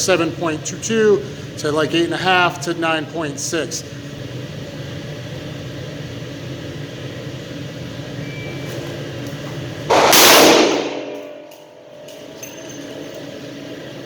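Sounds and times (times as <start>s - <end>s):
steady low hum: 0.0s - 14.0s
loud gunshot: 9.9s - 11.2s.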